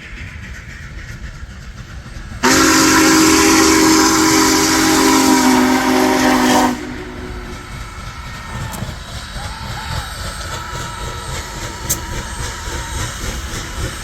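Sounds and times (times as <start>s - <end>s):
hissing steam: 0.0s - 14.0s
steam whistle blast: 2.4s - 7.8s.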